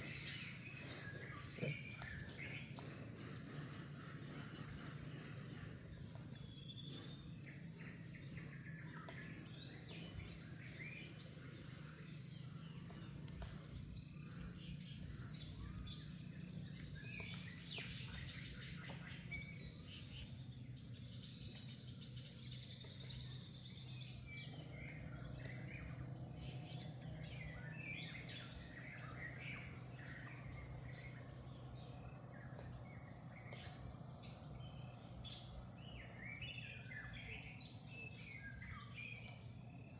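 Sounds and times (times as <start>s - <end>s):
small animals chirping and squeaking: 0.0s - 3.5s
low background hum: 0.0s - 39.9s.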